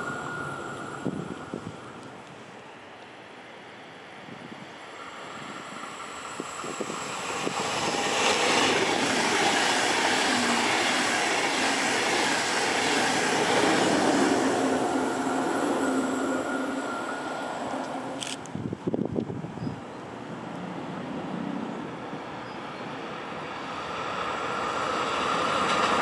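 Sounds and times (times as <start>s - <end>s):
train wheels rushing on rails: 0.0s - 2.4s, 4.4s - 19.3s, 20.2s - 26.0s.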